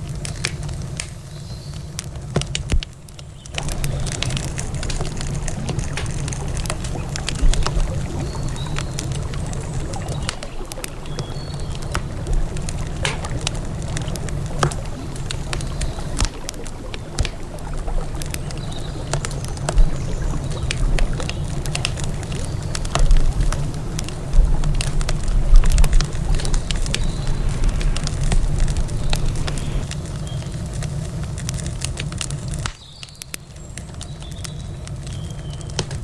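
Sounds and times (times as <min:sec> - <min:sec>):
campfire crackling and popping: 0:00.0 - 0:36.0
river water rushing: 0:03.6 - 0:29.9.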